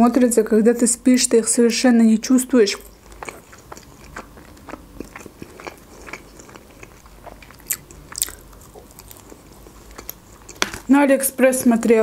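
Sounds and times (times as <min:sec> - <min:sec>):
person chewing food: 0:02.8 - 0:10.9.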